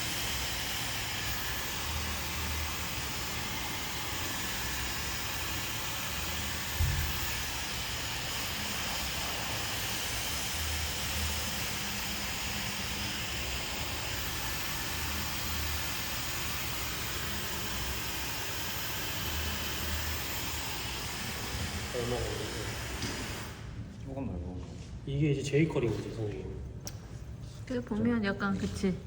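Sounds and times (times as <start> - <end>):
hair dryer blowing: 0.0 - 23.8
low thump: 6.8 - 7.2.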